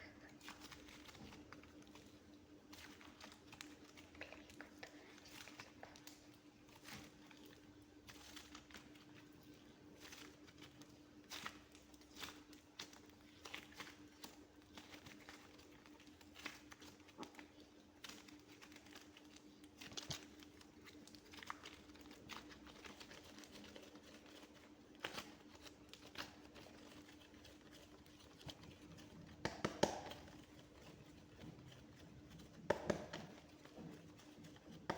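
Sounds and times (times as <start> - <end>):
faint steady hum: 0.0 - 34.9
sticky clicks and crackles: 0.0 - 34.9
clay squeezed by hand: 26.2 - 34.9.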